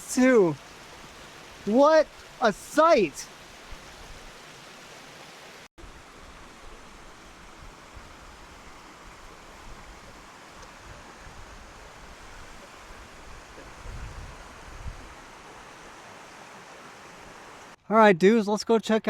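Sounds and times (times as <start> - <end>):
waterfall rushing: 0.0 - 7.6
wind rumbling on microphone: 7.4 - 15.4.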